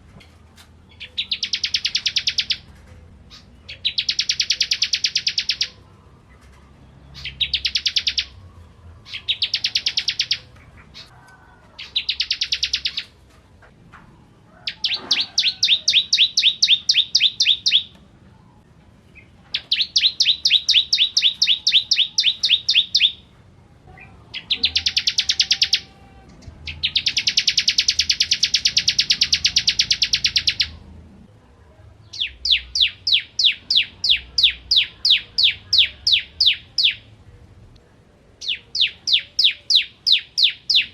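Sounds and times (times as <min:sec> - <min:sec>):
bird singing fast high trills: 0:07.2 - 0:08.4, 0:19.6 - 0:23.2, 0:24.3 - 0:26.0, 0:26.7 - 0:30.8.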